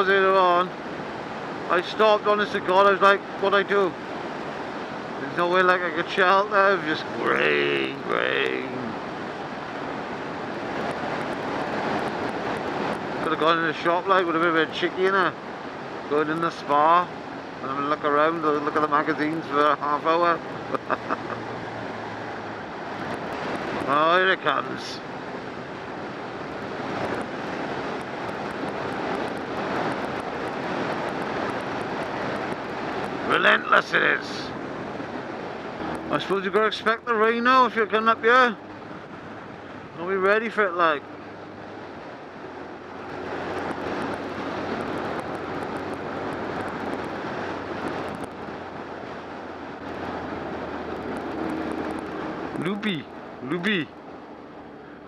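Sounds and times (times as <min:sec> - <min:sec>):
wind rushing over microphone: 0:00.0 - 0:55.0
motorcycle engine drone: 0:34.6 - 0:36.6
rain ticking on camera: 0:41.7 - 0:54.6.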